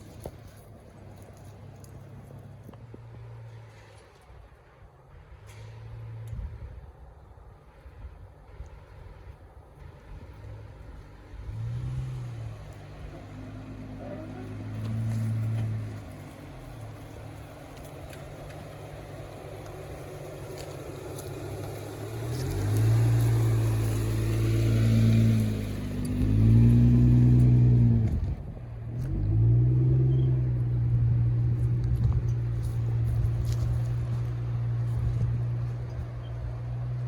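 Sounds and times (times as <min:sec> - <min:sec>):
car engine revving: 0:10.4 - 0:37.0.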